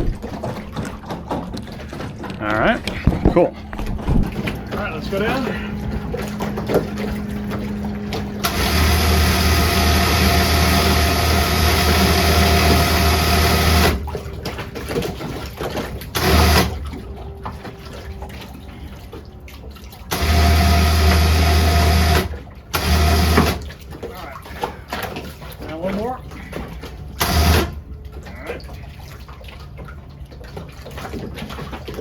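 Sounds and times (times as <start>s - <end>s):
electric motor humming: 3.5s - 14.0s, 20.1s - 23.6s.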